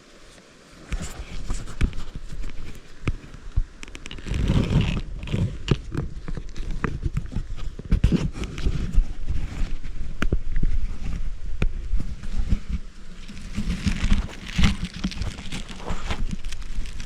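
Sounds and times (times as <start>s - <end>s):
close rustling: 0.2s - 17.0s
gear being handled: 13.2s - 17.0s.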